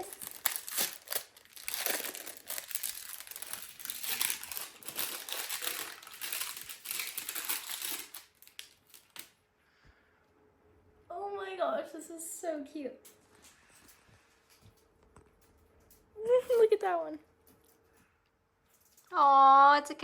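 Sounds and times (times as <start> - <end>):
gift packaging crinkling: 0.0 - 9.4.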